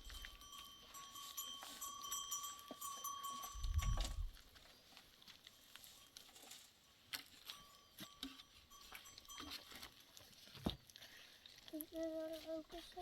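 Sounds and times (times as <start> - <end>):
livestock bells ringing: 0.0 - 4.4, 7.4 - 10.0.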